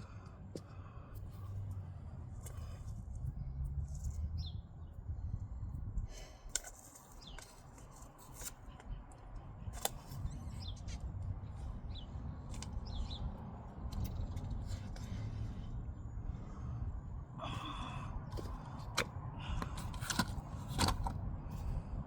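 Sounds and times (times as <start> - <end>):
low outdoor rumble: 0.0 - 22.0
bird chirps: 4.0 - 5.0, 7.0 - 7.6, 11.9 - 13.3.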